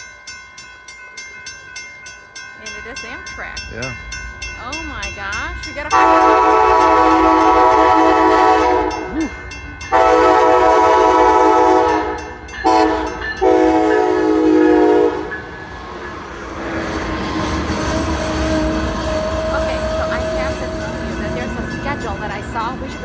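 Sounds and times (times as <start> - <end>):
train rolling noise: 0.0 - 23.0
locomotive horn blasts: 5.8 - 9.2, 9.9 - 15.6, 16.9 - 22.8.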